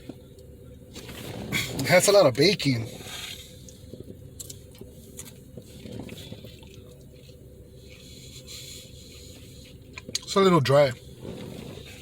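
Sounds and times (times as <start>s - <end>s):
low steady hum: 0.0s - 12.0s
soft squishing: 2.9s - 10.4s.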